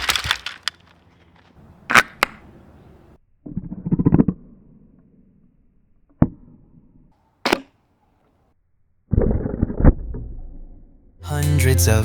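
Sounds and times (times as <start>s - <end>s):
hard plastic clattering: 0.0s - 1.4s
sharp crack: 0.0s - 2.4s.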